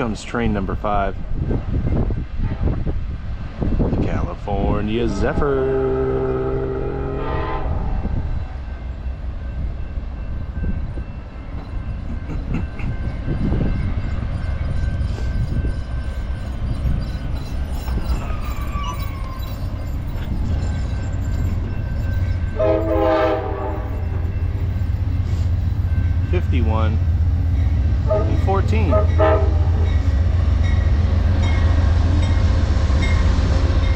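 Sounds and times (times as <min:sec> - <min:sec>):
train rumbling on rails: 0:00.0 - 0:33.9
train horn blast: 0:05.0 - 0:08.6, 0:22.6 - 0:24.4, 0:28.0 - 0:30.0
faint wheel squeal: 0:16.4 - 0:22.4.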